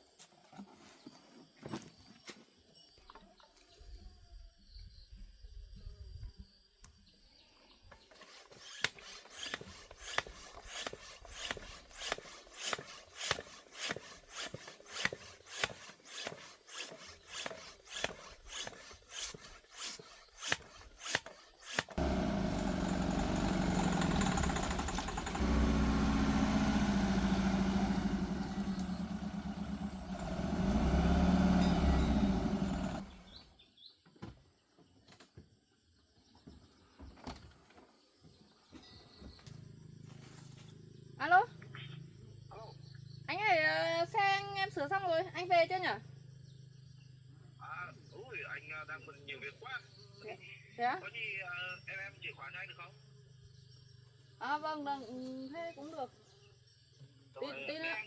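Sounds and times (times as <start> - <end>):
sharp strokes: 8.1 - 22.7
car engine revving: 21.8 - 33.4.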